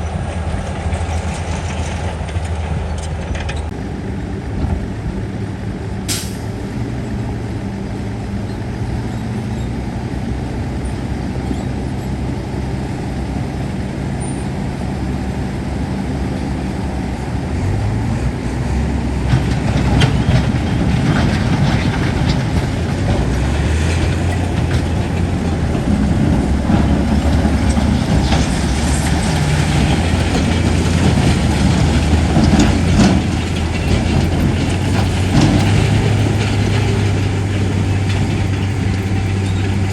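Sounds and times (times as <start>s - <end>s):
diesel machinery engine running: 0.0s - 39.9s
metal clanks and knocks: 19.3s - 39.9s.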